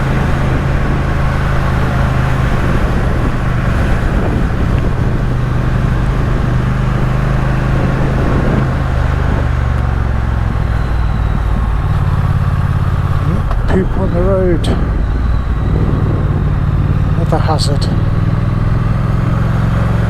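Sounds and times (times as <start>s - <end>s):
motorcycle engine under load: 0.0s - 20.0s
wind and road noise: 0.0s - 20.0s.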